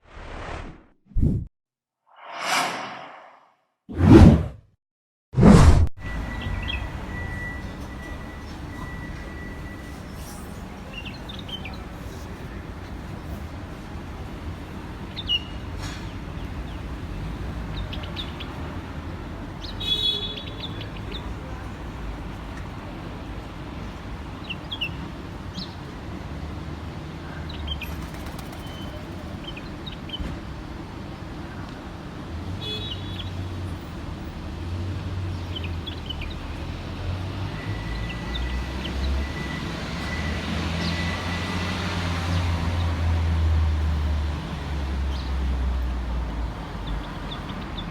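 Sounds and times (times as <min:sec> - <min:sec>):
road traffic rumble: 0:06.1 - 0:32.6, 0:33.6 - 0:47.9.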